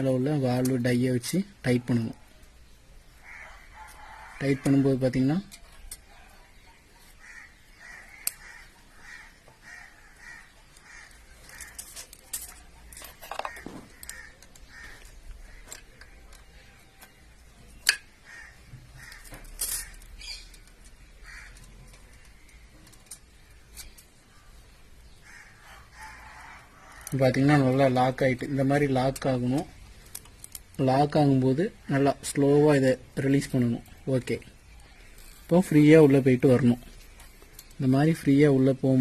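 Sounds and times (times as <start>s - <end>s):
crows cawing: 3.2s - 4.7s, 7.1s - 16.3s, 17.9s - 22.6s, 25.1s - 27.2s.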